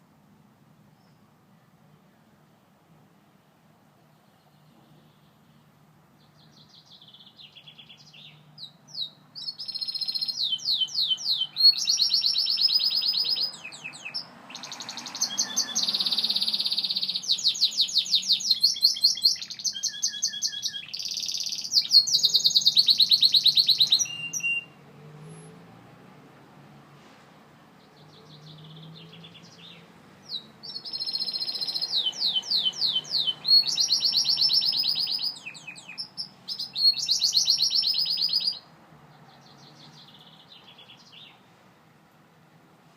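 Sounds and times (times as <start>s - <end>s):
canary singing trills: 6.2s - 24.8s, 27.8s - 41.4s.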